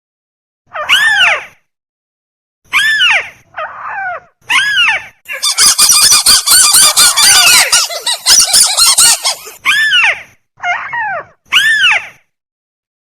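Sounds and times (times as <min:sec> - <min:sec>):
crake calls: 0:05.3 - 0:09.6.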